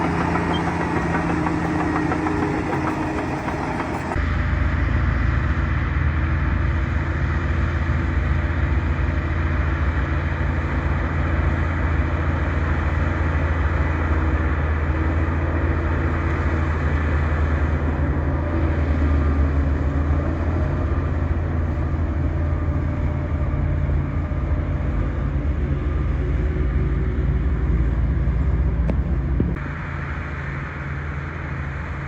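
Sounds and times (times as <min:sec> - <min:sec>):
bulldozer diesel engine: 0:00.0 - 0:04.2.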